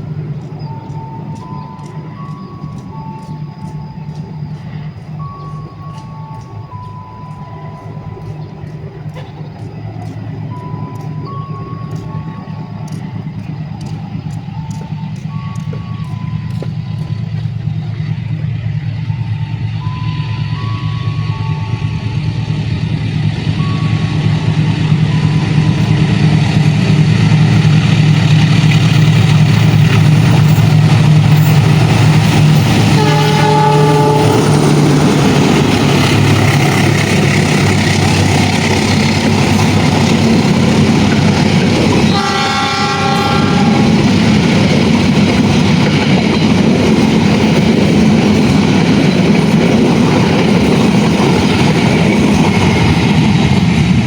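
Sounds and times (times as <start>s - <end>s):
locomotive engine drone: 0.0s - 54.0s
train carriages rumbling past: 0.0s - 54.0s
train horn: 18.4s - 22.6s, 29.3s - 44.4s.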